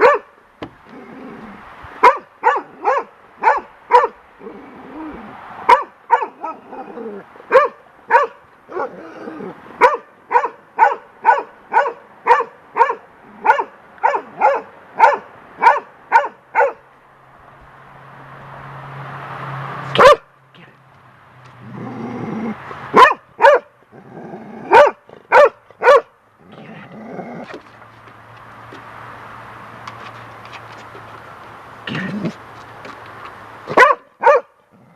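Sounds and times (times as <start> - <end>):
dog barking: 0.0 - 0.3, 2.0 - 4.2, 5.7 - 6.6, 7.5 - 9.0, 9.8 - 16.8, 20.0 - 20.3, 22.9 - 23.8, 24.6 - 26.2, 33.7 - 34.6.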